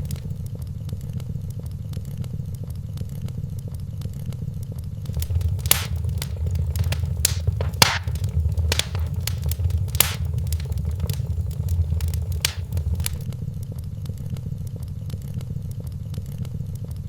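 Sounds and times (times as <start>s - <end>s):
low fire rumble: 0.0s - 0.3s, 5.1s - 13.3s
wood fire crackling and popping: 0.0s - 0.3s, 5.1s - 13.3s.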